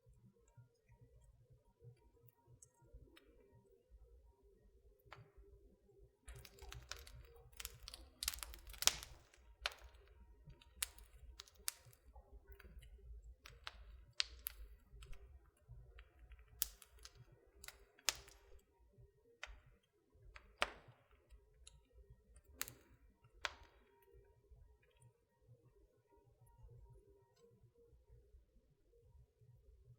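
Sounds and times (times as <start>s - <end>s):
fire popping: 6.3s - 18.6s
wood fire crackling: 6.3s - 18.8s, 19.4s - 24.0s.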